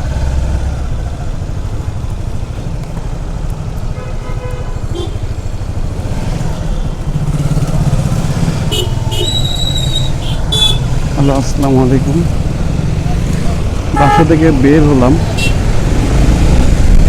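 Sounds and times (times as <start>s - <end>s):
road and wind noise: 0.0s - 17.0s
motorcycle engine running: 4.9s - 16.8s.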